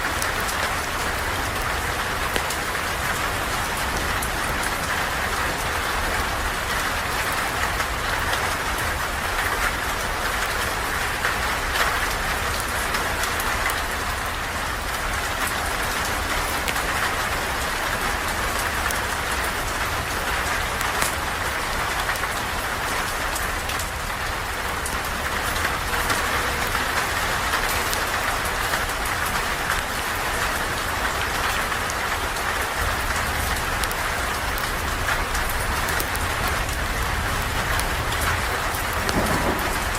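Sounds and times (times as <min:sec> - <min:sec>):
steady rain hiss: 0:00.0 - 0:39.9
raindrops ticking: 0:23.4 - 0:39.9.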